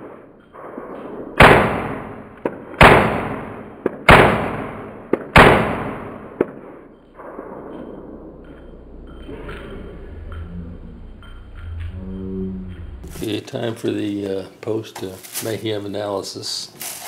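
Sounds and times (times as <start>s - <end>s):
rifle shots: 0.0s - 8.7s.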